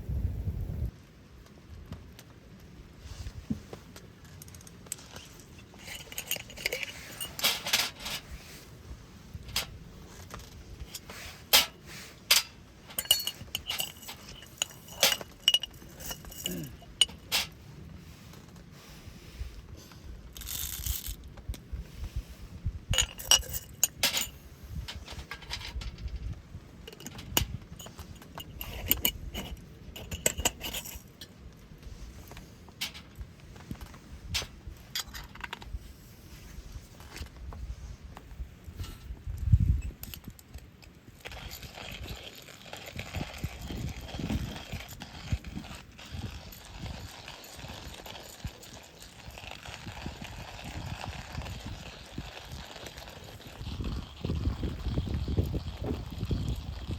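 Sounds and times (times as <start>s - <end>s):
metal cookware clinking and rattling: 5.8s - 8.3s, 10.9s - 17.6s, 23.0s - 26.2s, 26.9s - 31.0s.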